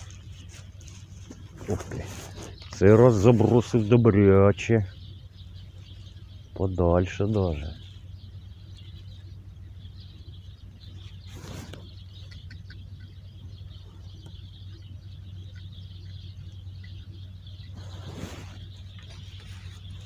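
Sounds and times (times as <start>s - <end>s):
faint bird chirps: 0.0s - 20.0s
steady low hum: 0.0s - 20.0s
rustling swishes: 11.0s - 12.0s, 17.7s - 20.0s.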